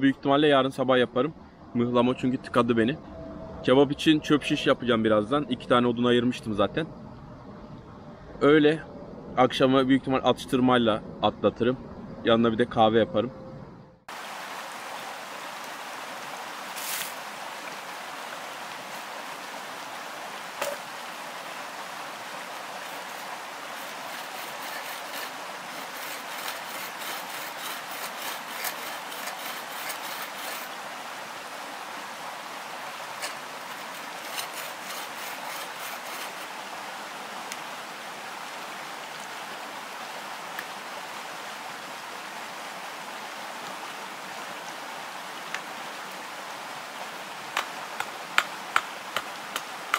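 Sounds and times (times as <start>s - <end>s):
flowing water rushing: 14.1s - 49.9s.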